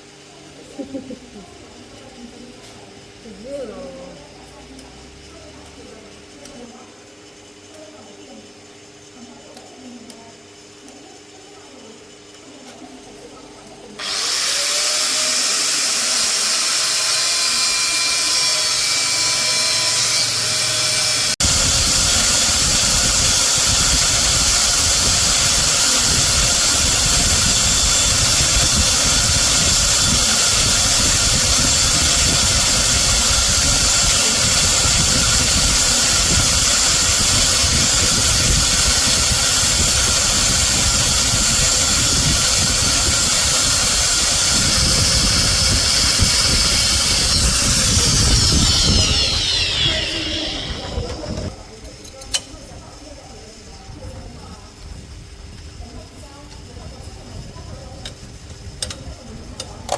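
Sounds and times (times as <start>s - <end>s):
power tool motor whine: 14.0s - 51.5s
power tool cutting metal: 14.0s - 51.6s.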